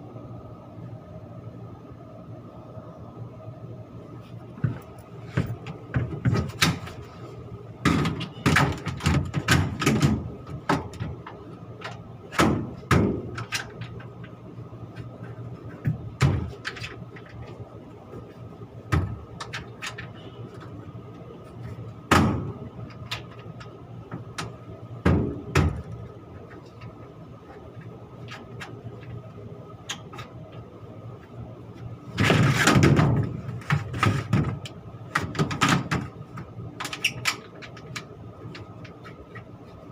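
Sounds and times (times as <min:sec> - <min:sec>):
machinery hum: 0:00.0 - 0:39.9
metal knocks and clanks: 0:04.6 - 0:07.1, 0:07.8 - 0:14.3, 0:32.1 - 0:39.4.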